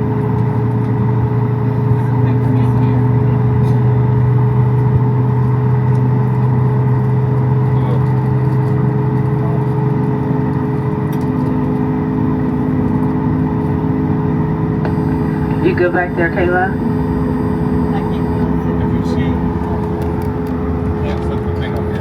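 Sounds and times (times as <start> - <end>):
aircraft cabin hum: 0.0 - 22.0.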